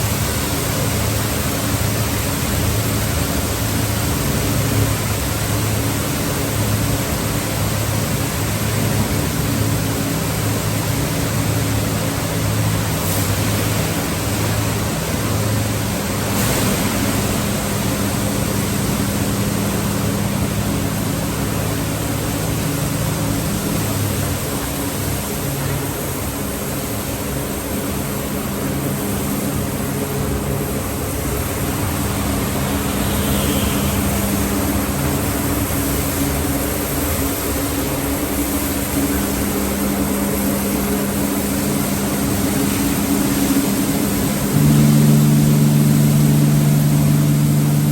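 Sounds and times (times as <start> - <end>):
low motor hum: 3.6 - 36.1, 40.0 - 47.9
water spray rushing: 8.6 - 26.4, 32.0 - 37.5.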